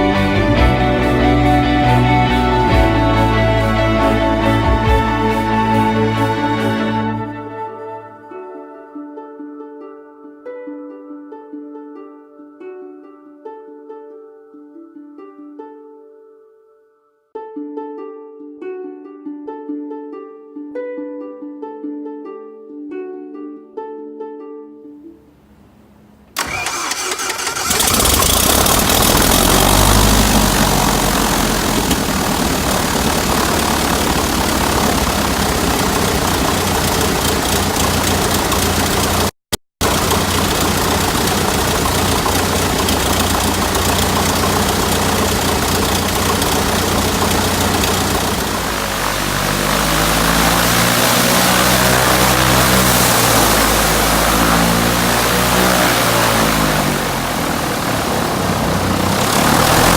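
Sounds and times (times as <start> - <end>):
aircraft engine starting and running: 0.0 - 7.6, 26.4 - 59.9.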